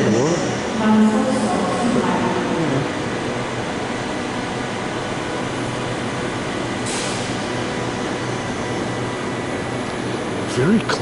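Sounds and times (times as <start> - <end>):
electric train carriage noise: 0.0 - 11.0
short burst of hiss: 6.8 - 7.3.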